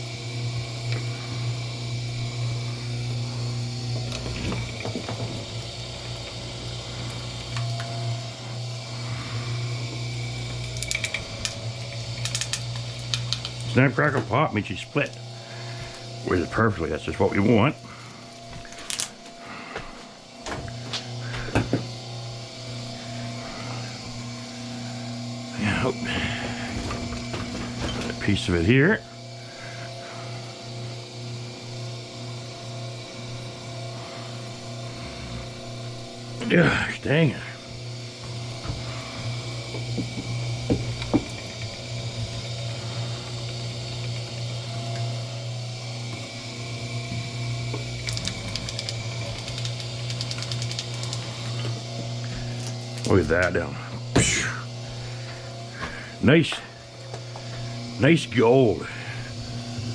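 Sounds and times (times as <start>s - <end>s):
machine motor humming: 0.0s - 59.9s
sharp clicks: 48.0s - 51.2s.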